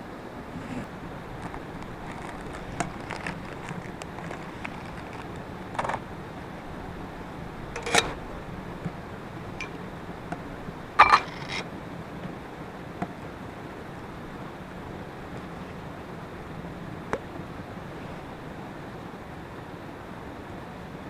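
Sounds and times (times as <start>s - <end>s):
steady background hiss: 0.0s - 21.0s
sharp clinks and knocks: 11.0s - 11.6s.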